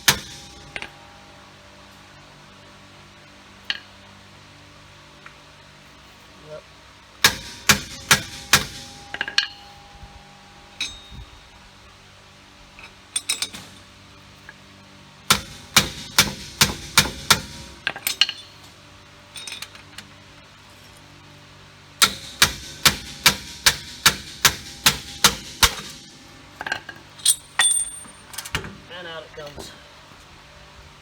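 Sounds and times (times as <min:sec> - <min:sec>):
hammer striking metal bolt: 0:00.0 - 0:01.0, 0:07.2 - 0:09.7, 0:13.2 - 0:13.8, 0:15.3 - 0:18.5, 0:22.0 - 0:28.8.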